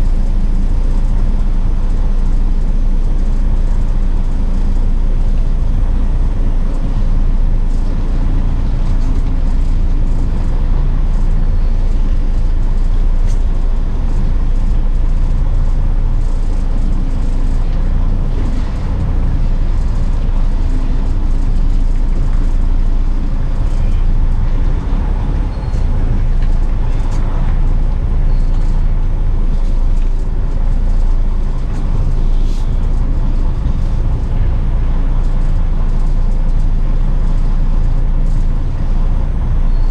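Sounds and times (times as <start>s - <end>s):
truck engine and road drone: 0.0s - 39.9s.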